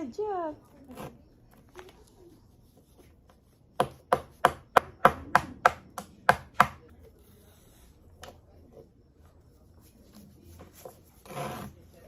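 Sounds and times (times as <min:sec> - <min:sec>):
small hammer tapping a block: 0:03.8 - 0:06.9.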